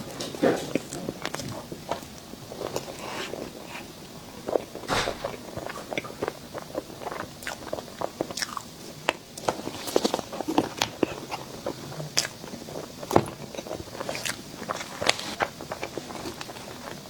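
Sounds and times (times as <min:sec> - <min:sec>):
crunchy chewing: 0:04.5 - 0:17.0.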